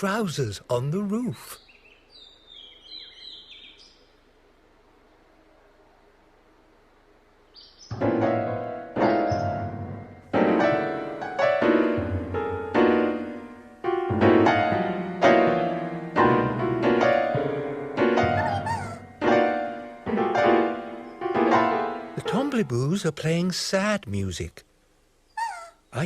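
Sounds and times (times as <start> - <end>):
slow sad piano music: 7.9 - 23.0.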